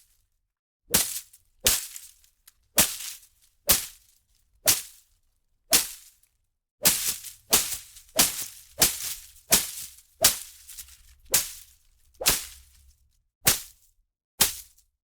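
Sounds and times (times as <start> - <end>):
foliage being whipped: 0.9 - 2.1, 2.8 - 4.0, 4.7 - 5.0, 5.7 - 6.1, 6.8 - 12.7, 13.5 - 13.7, 14.4 - 14.7.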